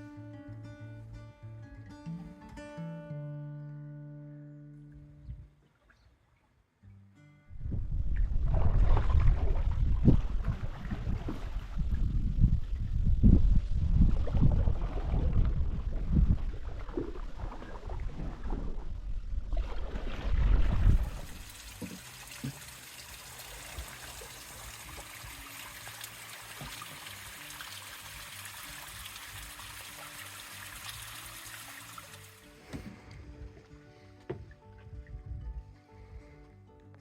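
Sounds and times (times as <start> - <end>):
wind buffeting microphone: 7.5 - 21.5, 34.9 - 36.3
running water hiss: 21.2 - 32.6.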